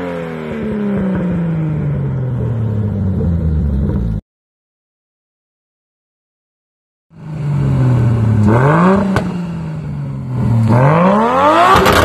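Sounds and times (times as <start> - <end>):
car engine idling and revving: 0.0 - 4.2, 7.1 - 12.0.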